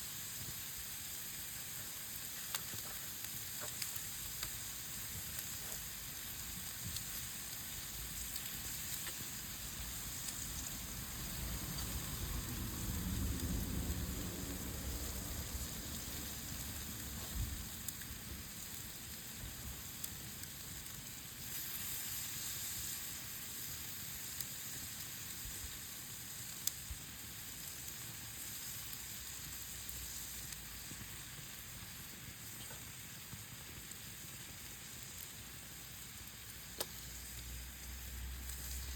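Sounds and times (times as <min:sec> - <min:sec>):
meat sizzling over a fire: 0:00.0 - 0:38.9
fire pops: 0:00.2 - 0:38.9
low rumble: 0:10.5 - 0:17.7.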